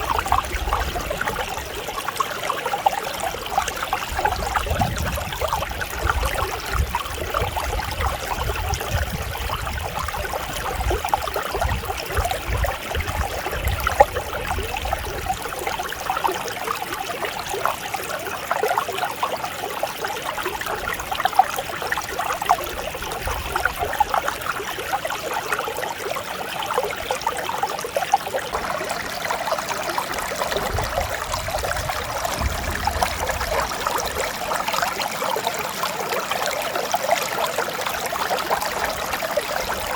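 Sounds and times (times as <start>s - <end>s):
stream babbling over rocks: 0.0s - 39.9s
low rumble: 28.6s - 34.8s.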